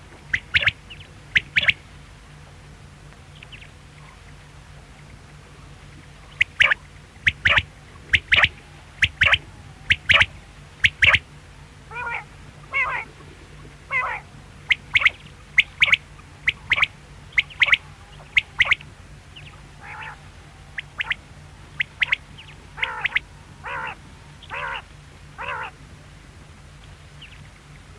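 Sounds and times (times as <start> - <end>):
low hum: 0.0 - 27.9
quail calling: 0.2 - 1.8, 6.2 - 11.3, 11.9 - 25.8.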